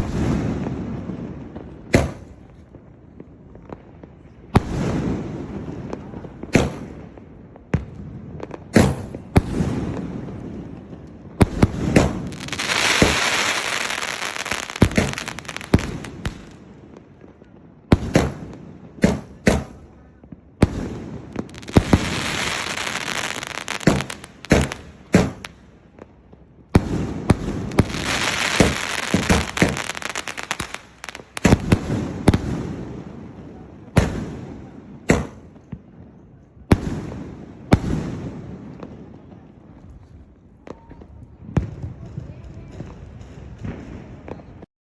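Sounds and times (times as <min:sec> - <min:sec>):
firework shots and bursts: 0:00.0 - 0:02.5, 0:04.5 - 0:17.2, 0:17.8 - 0:35.7, 0:36.7 - 0:39.1
firework hissing: 0:11.5 - 0:16.6, 0:21.4 - 0:25.5, 0:27.3 - 0:31.8.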